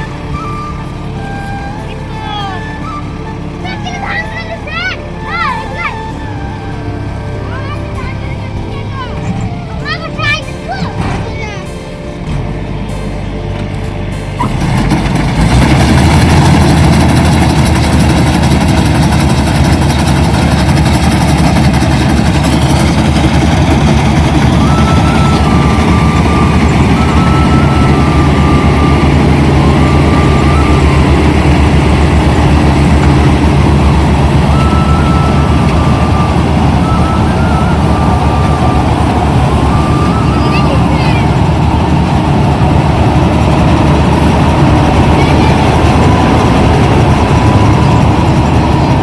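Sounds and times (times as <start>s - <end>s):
combine harvester engine: 0.0s - 49.0s
machine clatter: 14.4s - 25.2s.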